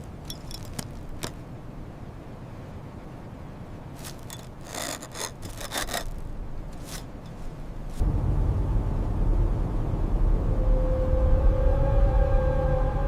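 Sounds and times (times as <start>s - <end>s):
short rough scraping: 4.0s - 6.2s
loud low rumble: 8.0s - 13.0s.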